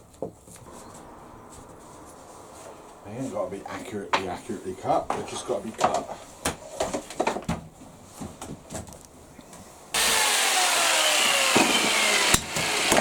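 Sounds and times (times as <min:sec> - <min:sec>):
power saw cutting wood: 0:09.9 - 0:13.0.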